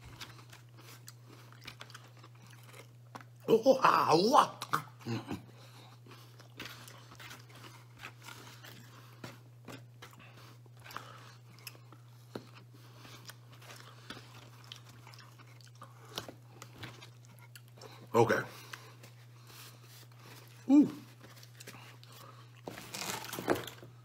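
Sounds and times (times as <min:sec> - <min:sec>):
man chewing food: 0:00.0 - 0:03.5, 0:04.6 - 0:24.0
steady low hum: 0:00.0 - 0:24.0.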